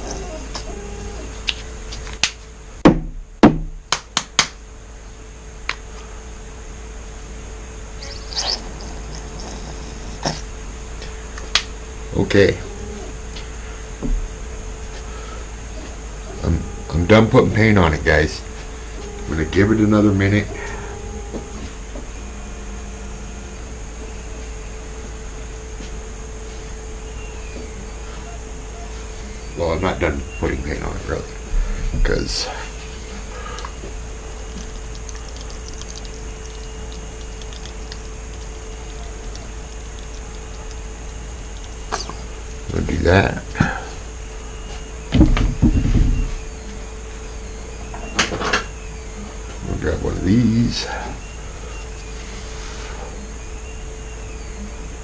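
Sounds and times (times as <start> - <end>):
faint steady hum: 0.0 - 55.0
faint steady whine: 0.0 - 55.0
hard knocks and taps: 2.8 - 4.6.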